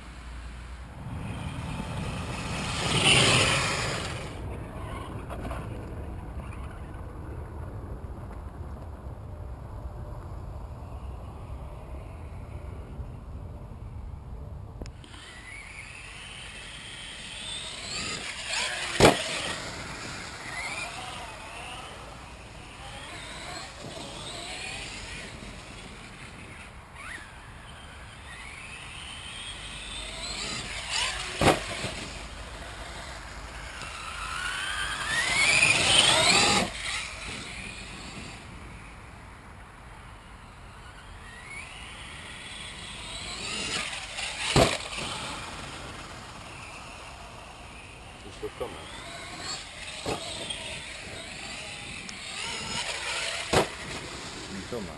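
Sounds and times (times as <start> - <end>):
electric motor whining: 15.0 - 38.9, 40.8 - 54.9.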